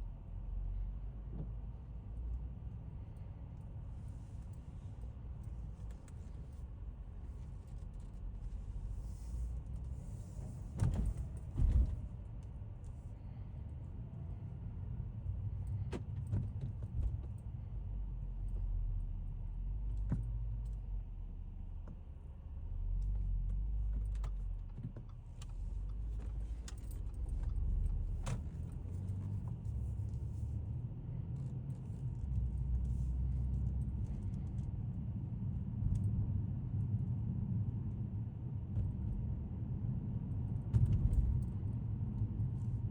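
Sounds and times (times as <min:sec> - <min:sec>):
car engine and road noise: 0:00.0 - 0:42.9
light clicks and rattles: 0:23.0 - 0:30.6.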